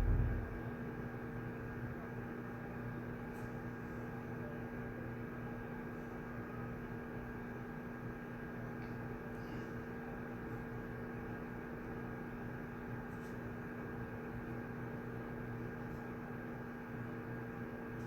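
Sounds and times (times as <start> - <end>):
low rumble: 0.0 - 0.8
electrical hum: 0.0 - 2.0.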